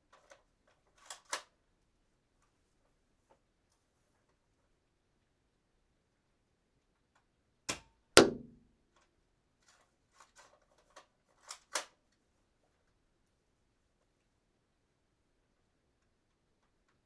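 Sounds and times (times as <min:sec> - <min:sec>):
dart gun firing snap: 0:07.7 - 0:08.6.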